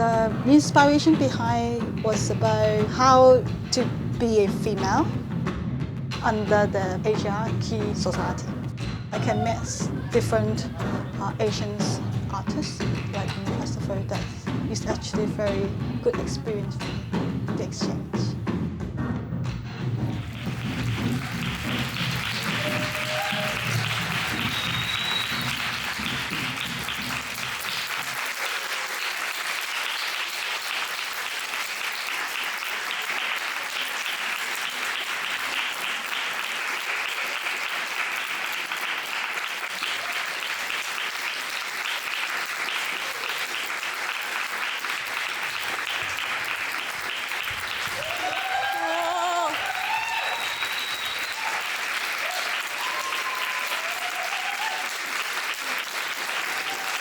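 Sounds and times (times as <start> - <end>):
low music: 0.0 - 24.6
audience applauding: 20.0 - 57.0.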